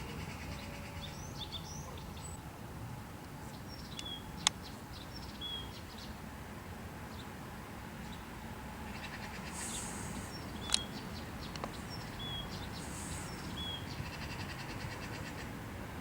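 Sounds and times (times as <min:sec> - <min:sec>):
small animals chirping: 0:09.0 - 0:11.0.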